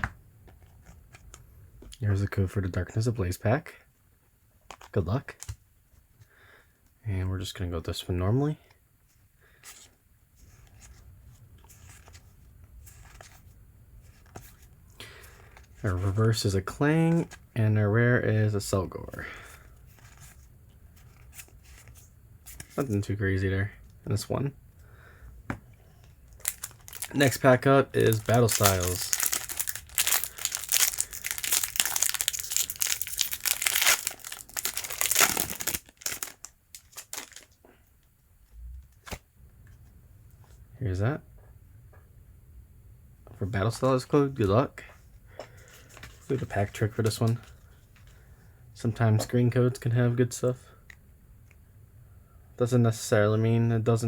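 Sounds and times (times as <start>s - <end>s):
trading cards handled: 25.5s - 37.5s
foil wrapper crinkling: 26.3s - 37.5s.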